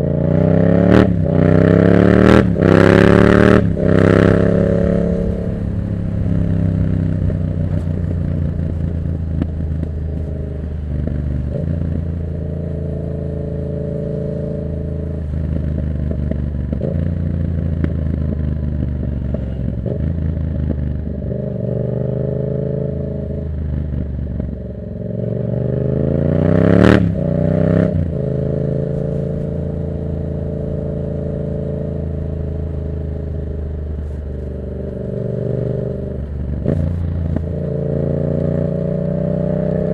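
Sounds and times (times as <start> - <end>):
motorcycle engine revving: 0.0 - 39.9
exhaust crack: 2.0 - 12.8.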